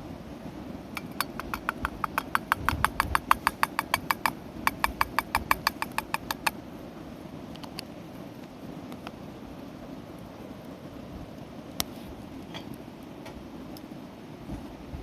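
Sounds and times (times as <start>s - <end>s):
cooking utensil tapping: 1.0s - 6.5s.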